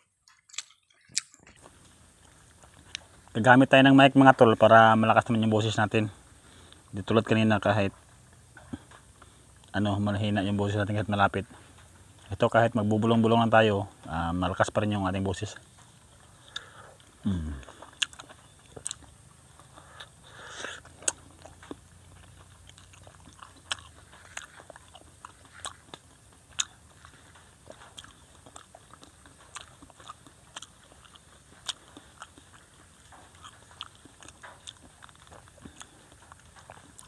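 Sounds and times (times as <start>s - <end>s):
biting and chewing fruit: 0.0s - 37.0s
wet mouth clicks: 16.4s - 37.0s.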